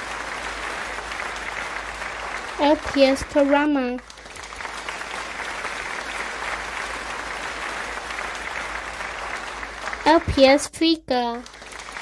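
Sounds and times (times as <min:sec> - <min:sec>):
audience applause: 0:00.0 - 0:10.6, 0:11.3 - 0:12.0.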